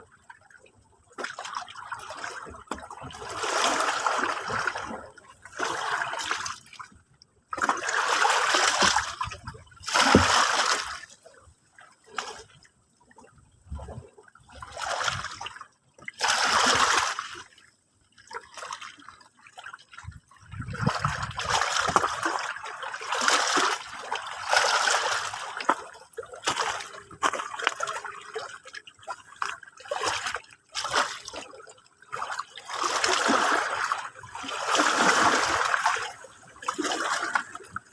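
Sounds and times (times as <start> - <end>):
sea water washing and splashing: 1.2 - 6.8, 7.6 - 11.2, 16.2 - 17.5, 20.6 - 37.9.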